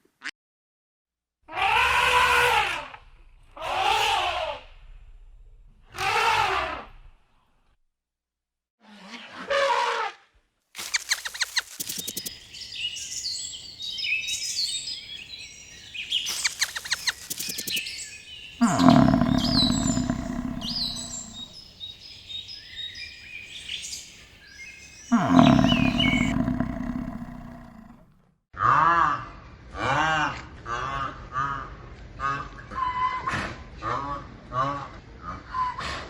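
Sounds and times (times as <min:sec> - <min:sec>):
rapid clicking: 0:10.8 - 0:12.4, 0:16.3 - 0:17.9
small birds chirping: 0:10.8 - 0:28.0
cow mooing: 0:18.6 - 0:21.5, 0:25.1 - 0:28.0.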